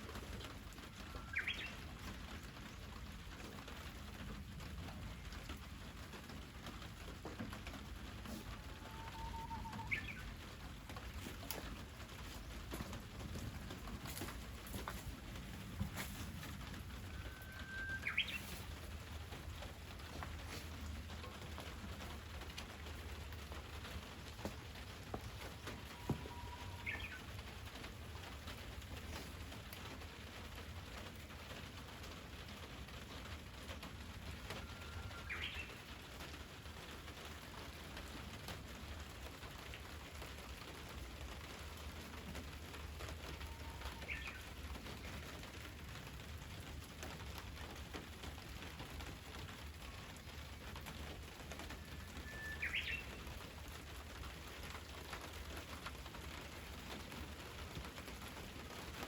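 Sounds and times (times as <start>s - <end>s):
bird singing: 1.1s - 1.8s, 8.8s - 10.3s, 17.1s - 18.6s, 26.0s - 27.3s, 43.5s - 44.4s, 51.8s - 53.2s.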